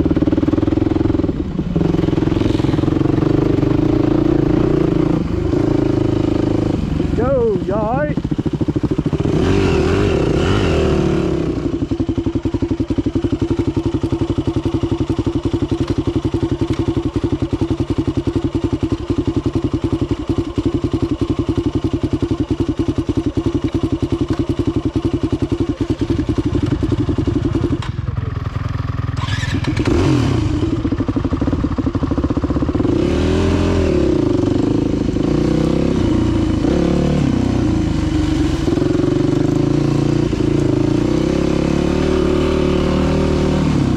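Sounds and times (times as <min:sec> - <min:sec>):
dirt bike engine revving: 0:00.0 - 0:19.6, 0:29.1 - 0:31.6, 0:32.7 - 0:43.9.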